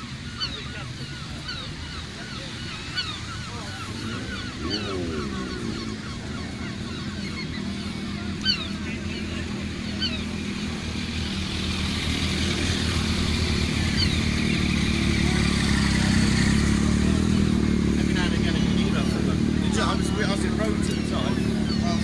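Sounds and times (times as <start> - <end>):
motorcycle engines running: 0.0 - 22.0.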